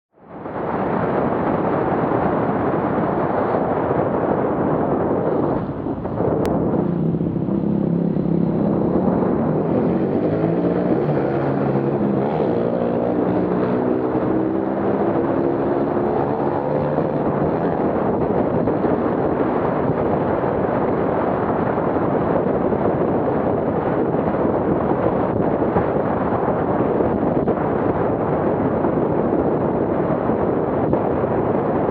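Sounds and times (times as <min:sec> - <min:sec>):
steady rushing noise: 0:00.2 - 0:31.9
motorcycle engines revving: 0:05.4 - 0:21.0.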